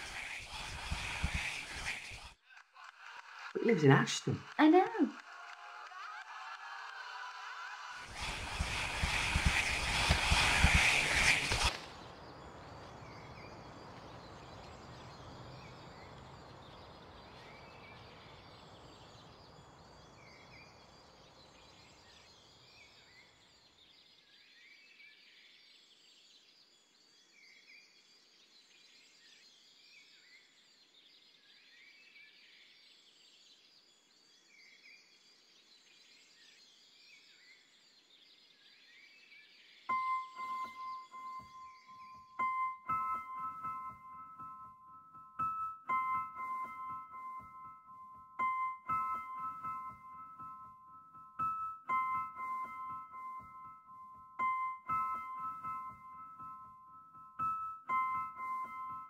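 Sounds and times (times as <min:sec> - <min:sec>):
faint hiss: 0:00.0 - 0:02.4, 0:08.0 - 0:20.8.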